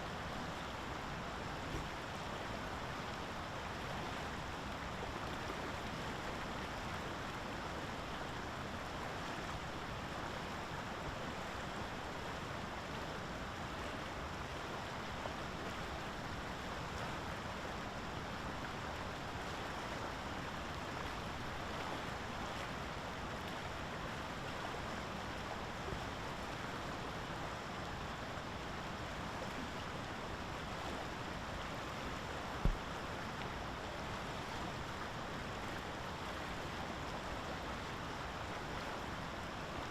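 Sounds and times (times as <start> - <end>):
short low thump: 32.6 - 32.8.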